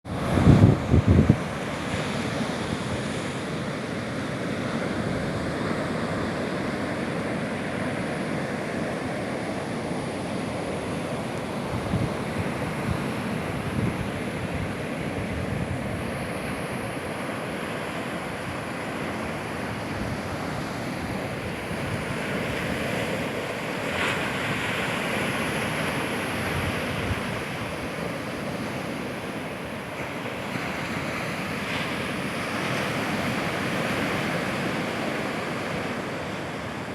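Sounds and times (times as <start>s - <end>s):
sea waves washing: 0.0s - 36.9s
wind buffeting microphone: 0.1s - 3.5s, 11.5s - 17.6s, 18.2s - 35.9s.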